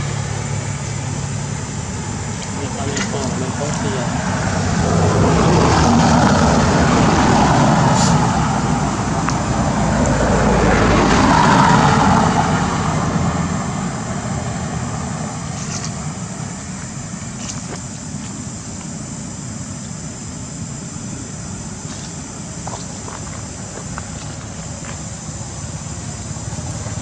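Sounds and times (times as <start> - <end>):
motor vehicle passing: 0.0 - 16.8.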